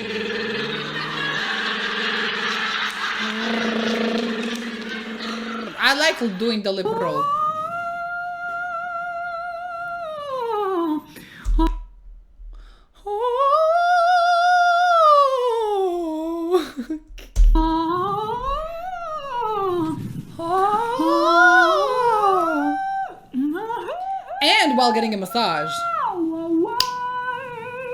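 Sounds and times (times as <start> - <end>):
two voices gliding: 0.0 - 6.1
woman humming vocal sirens: 20.4 - 25.6.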